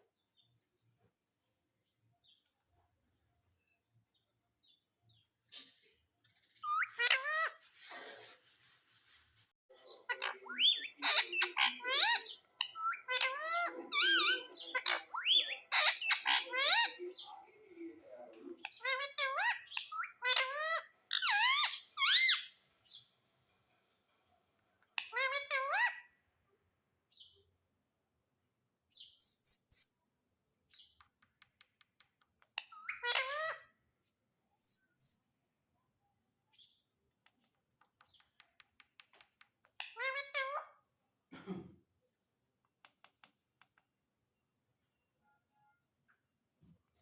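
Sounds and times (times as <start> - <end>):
parakeet squawking: 6.6 - 7.6, 10.0 - 17.2, 18.6 - 22.6, 25.0 - 26.1, 32.6 - 33.8, 39.7 - 40.8
parrot screeching and calling: 6.6 - 7.6, 10.0 - 17.0, 18.7 - 22.6, 25.0 - 26.1, 32.6 - 33.8, 39.8 - 40.8.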